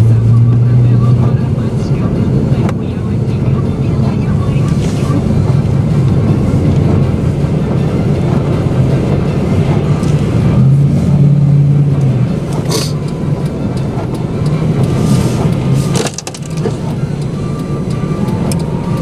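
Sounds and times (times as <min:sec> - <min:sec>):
car engine hum: 0:00.0 - 0:19.0
road and tyre noise: 0:00.0 - 0:19.0.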